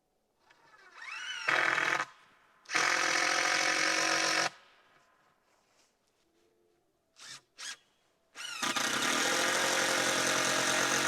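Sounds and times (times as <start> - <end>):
power drill whining: 8.4 - 11.0.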